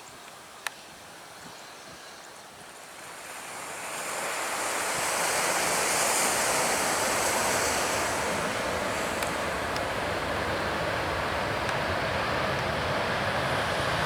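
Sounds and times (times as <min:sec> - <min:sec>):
jet engine roaring: 0:03.1 - 0:14.0.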